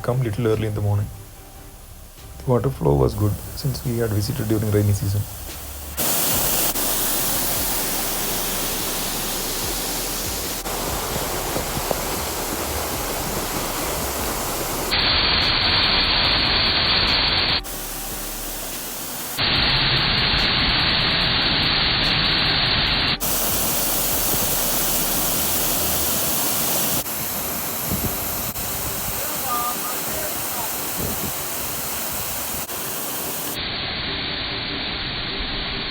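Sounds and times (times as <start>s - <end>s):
waterfall rushing: 1.8s - 33.7s.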